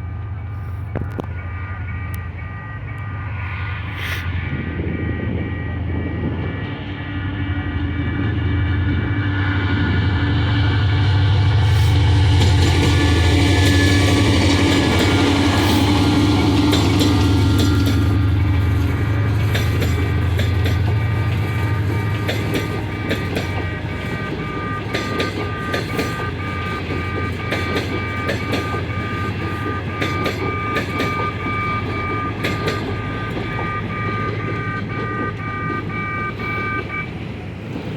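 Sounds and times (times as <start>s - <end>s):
crossing alarm ringing: 0.0s - 37.9s
diesel locomotive engine drone: 0.0s - 37.9s
train wheels clicking over rail joints: 11.8s - 37.9s.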